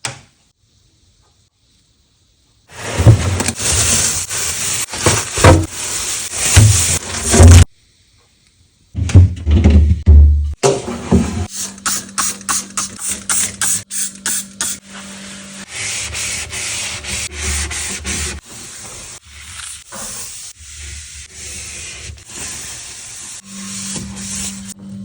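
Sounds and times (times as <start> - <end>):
scrubbing a surface by hand: 2.7 - 7.7, 14.9 - 24.8.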